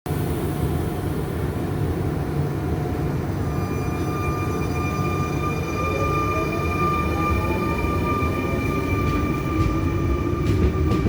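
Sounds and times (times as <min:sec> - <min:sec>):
electric train rumbling: 0:00.1 - 0:11.0
rising whine: 0:03.1 - 0:11.0.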